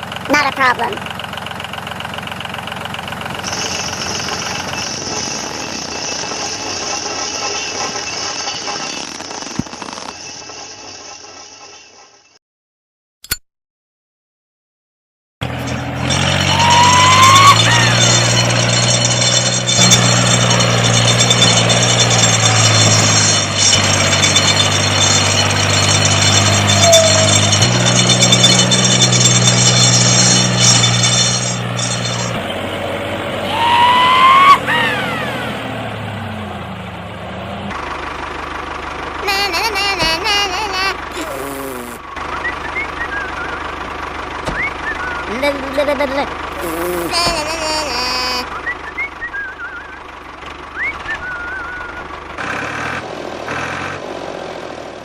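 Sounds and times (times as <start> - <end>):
small motor rattling: 0.0 - 12.1, 15.6 - 32.4, 37.9 - 48.5.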